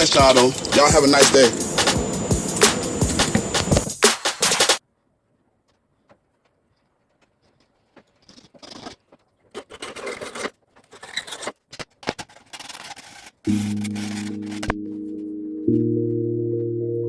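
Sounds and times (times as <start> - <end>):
scraping and rustling: 5.4 - 14.7.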